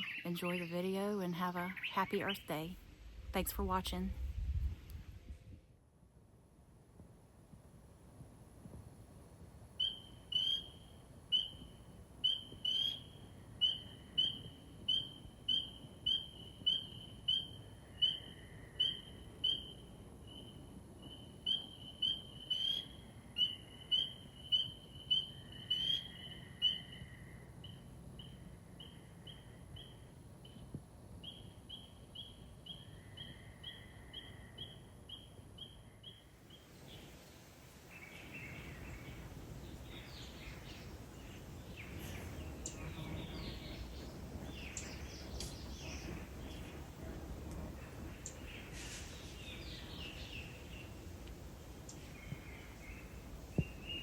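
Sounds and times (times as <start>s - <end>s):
fainter bird calling lower: 0.0s - 2.7s, 9.8s - 30.0s
outdoor hiss: 0.0s - 34.2s, 36.3s - 54.0s.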